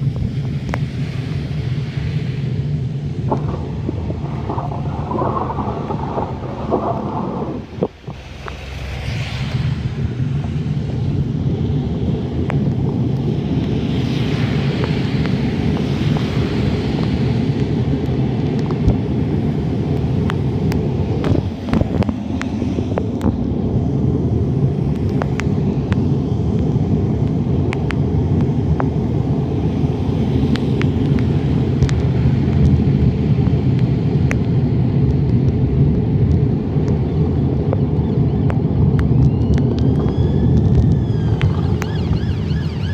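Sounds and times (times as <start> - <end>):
wind rumble: 0.0 - 42.9
road vibration: 2.6 - 42.9.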